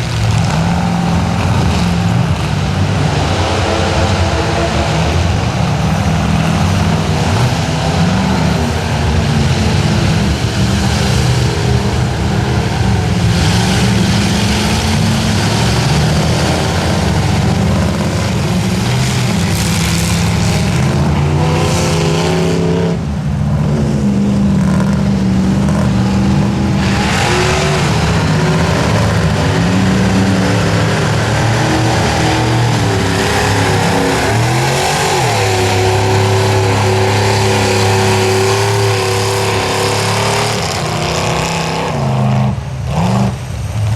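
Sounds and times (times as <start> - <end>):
truck engine revving hard: 0.0 - 43.9.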